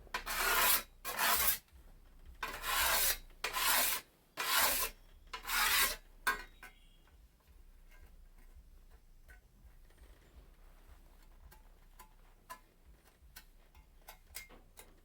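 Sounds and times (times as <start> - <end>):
whetstone scraping scythe blade: 0.2 - 1.6, 2.4 - 6.5.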